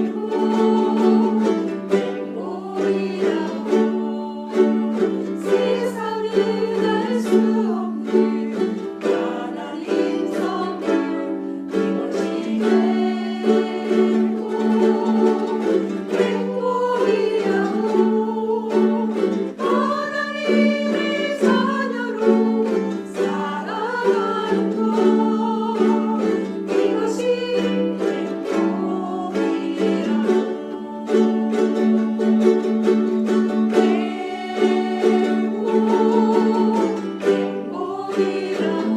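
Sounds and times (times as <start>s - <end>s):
ukuleles strumming: 0.0s - 38.9s
voices singing: 0.0s - 38.9s.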